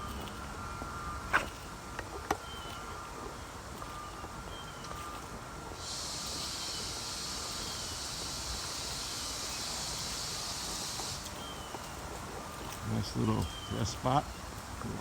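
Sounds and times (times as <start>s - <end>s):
insect buzzing drone: 5.5s - 15.0s.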